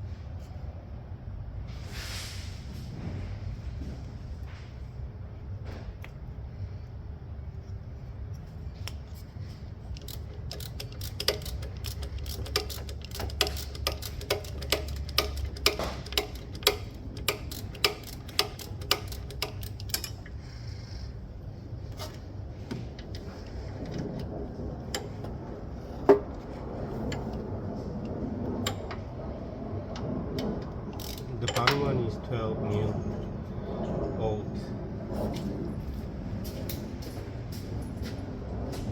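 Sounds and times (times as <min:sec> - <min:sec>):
ratchet wrench clicking: 0:09.9 - 0:20.3, 0:31.0 - 0:31.7.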